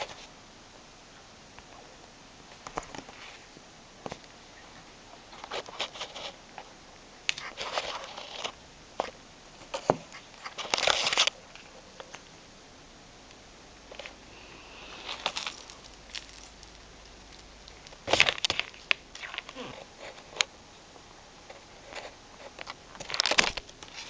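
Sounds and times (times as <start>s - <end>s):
cat scratching and scuffing: 5.4s - 6.4s.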